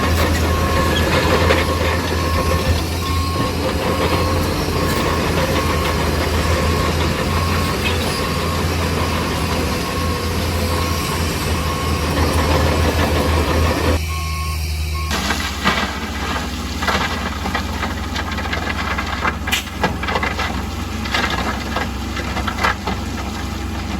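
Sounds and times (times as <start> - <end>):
backup alarm beeping: 0.0 - 15.6
heavy diesel engine drone: 0.0 - 23.9.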